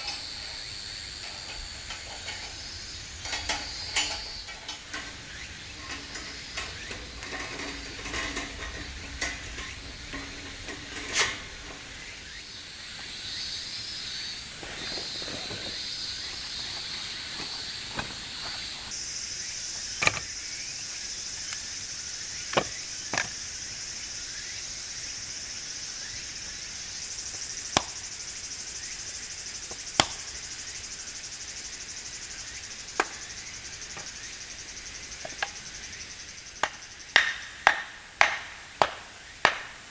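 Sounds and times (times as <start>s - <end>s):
camp gear clattering: 0.0s - 12.2s, 14.5s - 19.0s
wood fire crackling: 0.0s - 12.4s
insect chorus: 0.0s - 39.9s.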